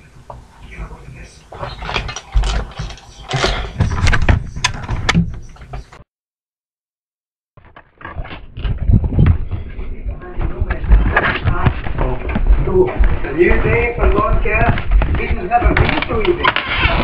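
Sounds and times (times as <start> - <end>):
laptop handling noise: 1.5 - 5.8.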